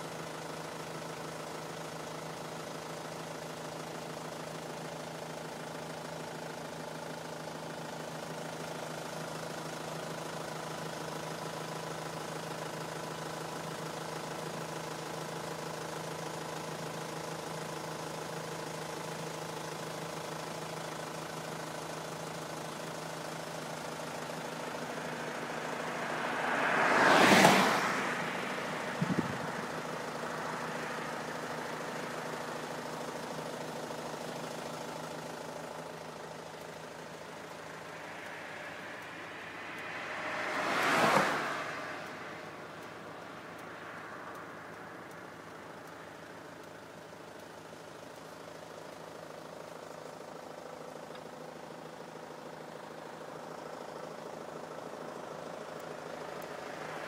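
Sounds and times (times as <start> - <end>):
vehicle engine idling: 0.0 - 57.0
vehicle passing by: 24.8 - 29.8, 37.8 - 44.6.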